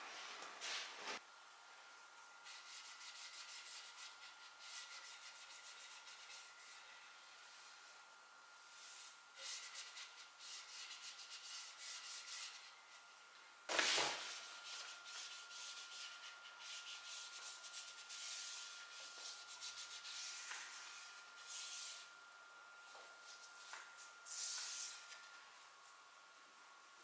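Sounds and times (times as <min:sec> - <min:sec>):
hand sanding wood with sandpaper: 0:02.4 - 0:07.9, 0:08.7 - 0:13.0, 0:13.7 - 0:22.1, 0:23.2 - 0:25.2.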